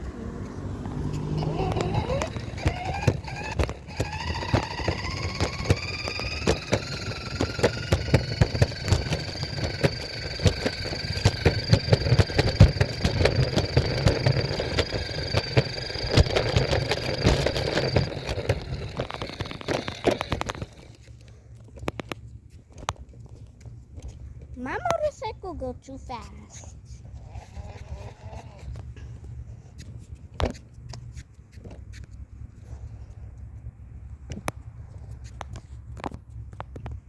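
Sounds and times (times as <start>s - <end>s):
small motorcycle motor whining: 0.0s - 21.3s, 27.1s - 29.3s
knocking and rattling: 1.2s - 21.0s.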